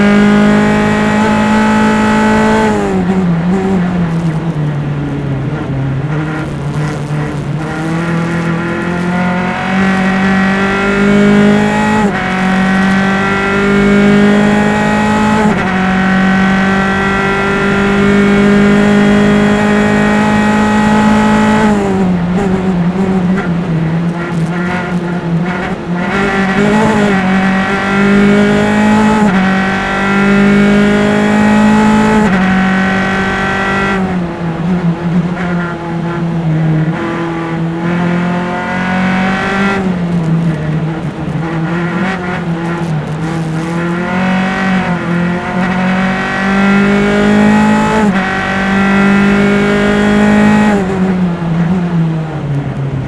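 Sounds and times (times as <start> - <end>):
race car engine accelerating: 0.0 - 53.0.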